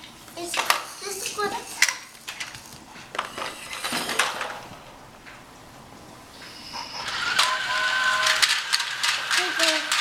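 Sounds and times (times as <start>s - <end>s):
plastic toy pieces clicking: 8.4s - 10.0s.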